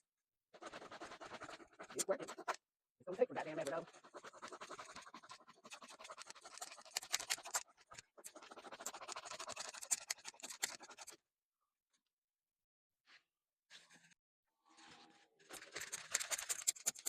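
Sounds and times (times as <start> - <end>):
handsaw sawing through wood: 0.6 - 2.6, 3.3 - 11.1.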